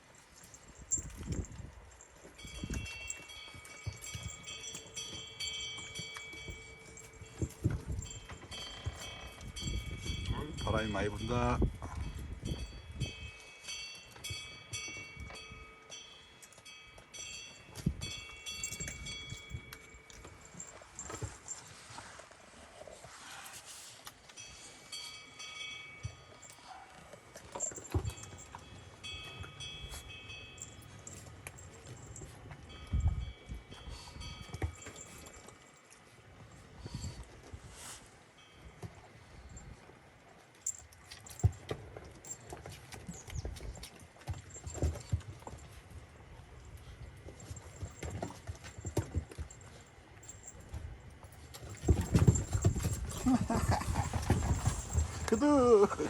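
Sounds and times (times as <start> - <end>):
small bells jingling: 0.0 - 22.3, 24.2 - 37.2, 40.6 - 56.0
wind buffeting microphone: 7.3 - 13.4, 32.7 - 34.7.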